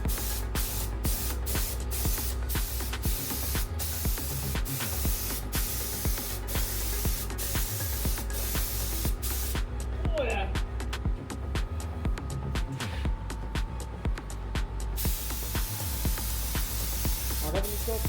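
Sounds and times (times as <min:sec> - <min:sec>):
spray gun hissing: 0:00.0 - 0:09.6, 0:15.0 - 0:18.0.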